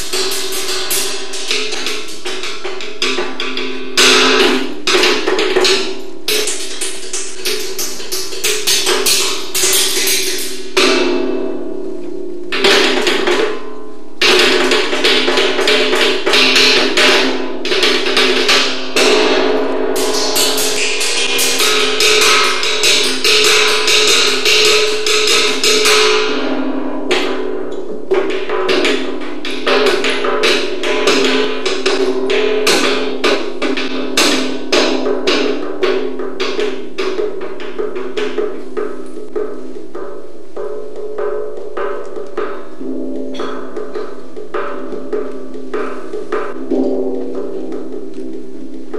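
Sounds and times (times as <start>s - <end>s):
rapid drum strikes: 0.0s - 11.7s, 12.4s - 48.9s
sustained tones: 19.0s - 24.2s.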